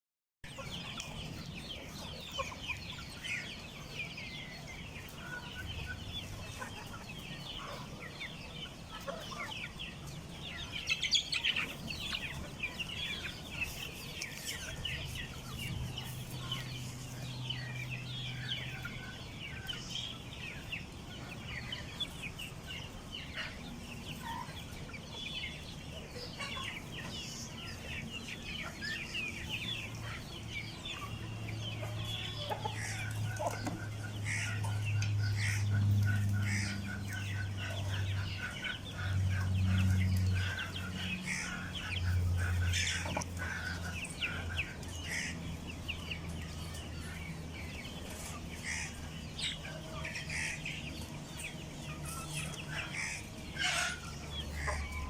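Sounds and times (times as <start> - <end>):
chicks peeping: 0.4 - 55.0
hen clucking: 0.5 - 55.0.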